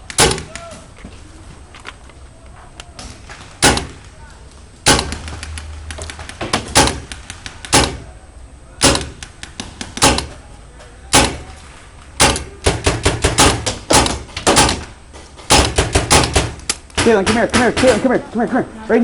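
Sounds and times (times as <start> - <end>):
paintball markers firing: 0.0 - 0.9, 2.8 - 4.2, 4.9 - 8.1, 8.8 - 10.4, 11.1 - 11.6, 12.2 - 18.1.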